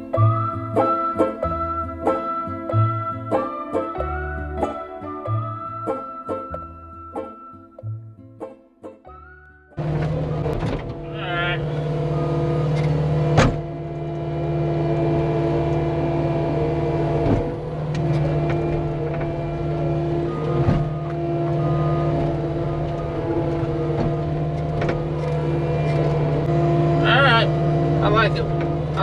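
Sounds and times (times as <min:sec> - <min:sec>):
diesel engine running: 0:09.8 - 0:29.0.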